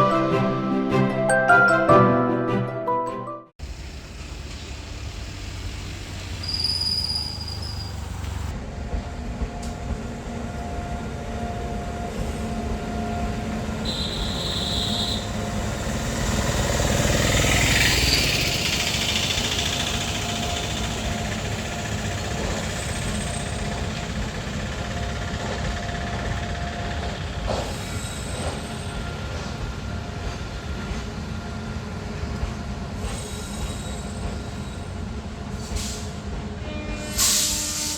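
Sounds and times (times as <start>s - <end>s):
train wheels rumbling on rails: 3.6s - 37.9s
high wheel squeals: 6.2s - 8.5s.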